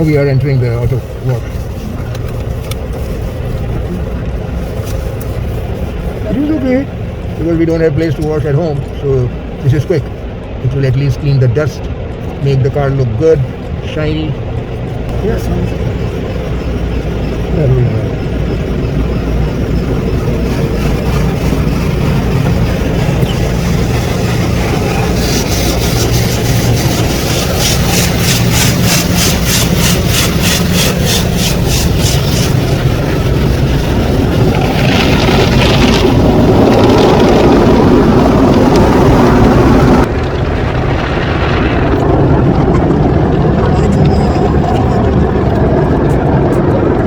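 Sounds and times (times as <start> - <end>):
car wash machinery rumbling: 0.0 - 47.0
water jets hissing pulse: 15.1 - 34.8
loud water rush: 20.5 - 43.8.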